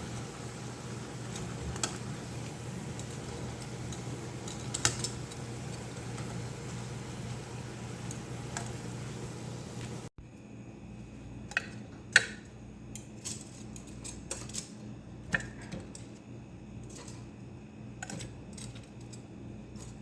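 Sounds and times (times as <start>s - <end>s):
steady hum with faint ticks: 0.0s - 20.0s
utensils clinking against dishes: 2.9s - 6.3s, 11.5s - 16.2s, 16.8s - 17.3s.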